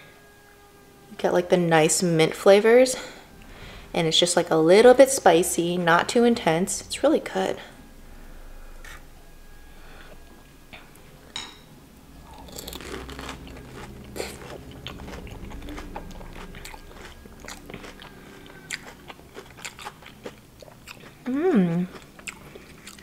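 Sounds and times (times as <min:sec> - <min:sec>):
crunching and chewing crisp shell: 0:12.2 - 0:23.0.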